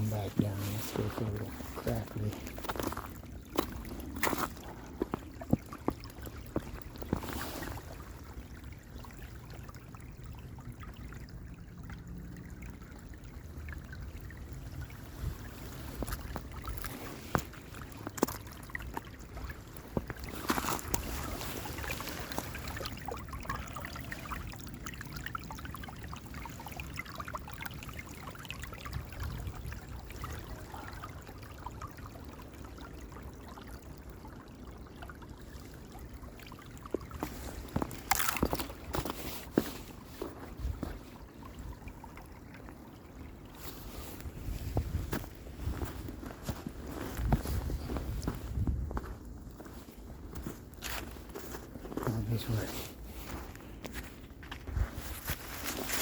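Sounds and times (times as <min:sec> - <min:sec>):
creek trickling: 0:00.0 - 0:56.0
footsteps on snow and ice: 0:00.4 - 0:06.0, 0:15.7 - 0:18.4, 0:19.8 - 0:22.7, 0:37.2 - 0:41.0, 0:43.7 - 0:56.0.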